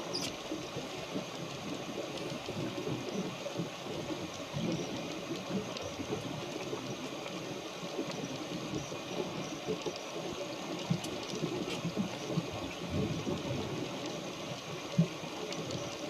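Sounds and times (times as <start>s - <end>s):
faint ticks: 0.0s - 16.0s
water rushing and sloshing: 0.0s - 16.0s.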